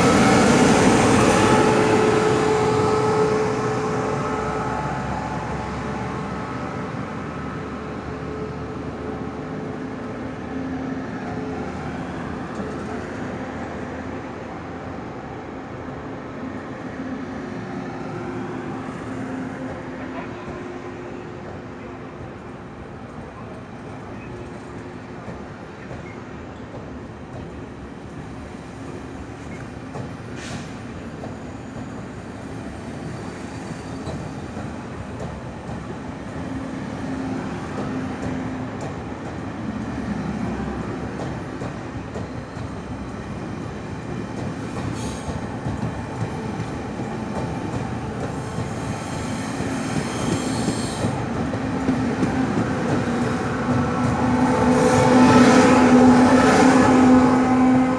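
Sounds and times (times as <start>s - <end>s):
train wheels rumbling on rails: 17.4s - 57.9s.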